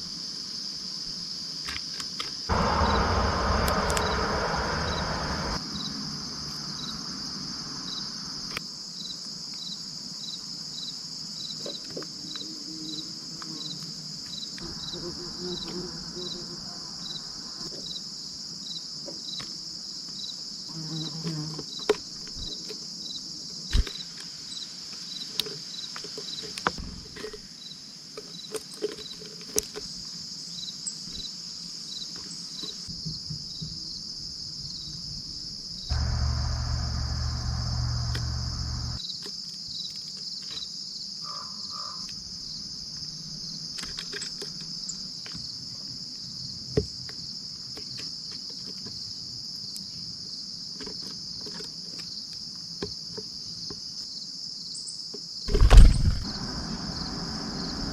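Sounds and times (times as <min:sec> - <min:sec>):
insects trilling: 0:00.0 - 0:57.9
low rumble: 0:02.5 - 0:05.6, 0:35.9 - 0:39.0, 0:55.5 - 0:57.9.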